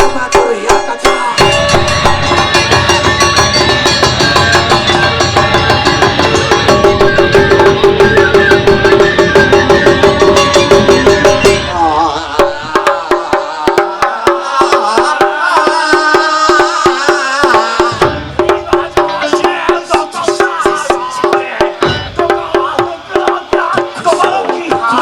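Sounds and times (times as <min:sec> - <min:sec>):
taiko drum strikes: 0:00.0 - 0:25.0
wavering melody line: 0:01.0 - 0:13.2, 0:17.5 - 0:25.0
repeating pulsed note: 0:01.4 - 0:13.6.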